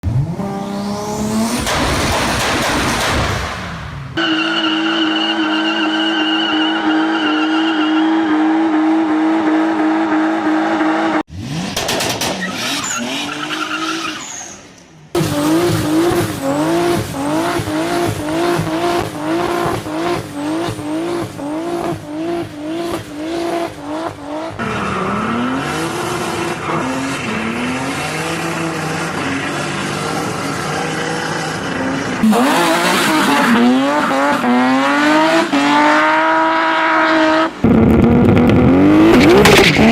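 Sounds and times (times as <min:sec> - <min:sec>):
car engine at high revs: 0:00.0 - 0:14.1, 0:15.1 - 0:39.9
tires squealing: 0:04.2 - 0:11.2, 0:12.1 - 0:23.1, 0:24.1 - 0:39.9.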